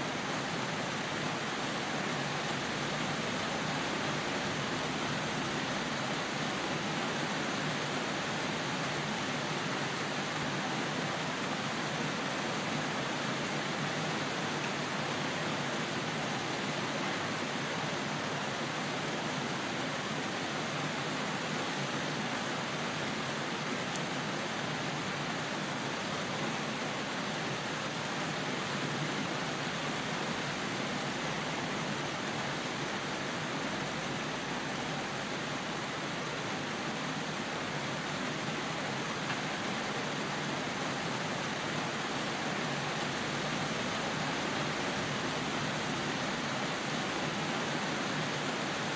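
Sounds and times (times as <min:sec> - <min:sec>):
steady rain falling: 0:00.0 - 0:48.9.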